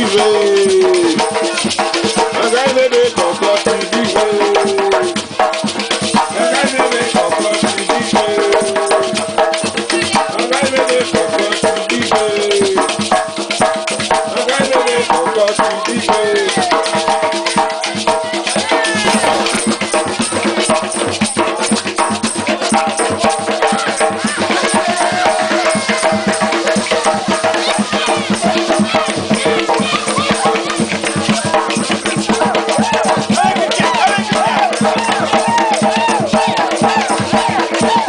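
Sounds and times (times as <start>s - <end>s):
hand drums beating: 0.0s - 38.0s
shakers rattling: 0.0s - 38.0s
voices singing: 0.0s - 38.0s.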